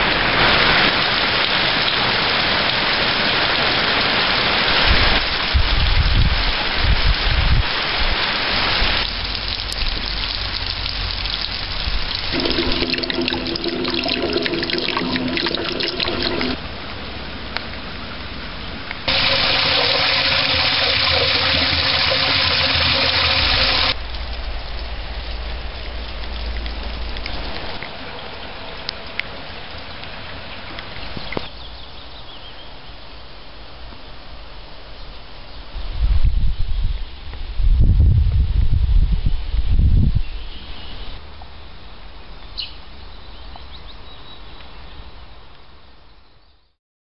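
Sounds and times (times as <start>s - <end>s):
rain falling: 0.0s - 32.2s
water splashing on asphalt: 7.7s - 17.9s, 19.0s - 31.6s.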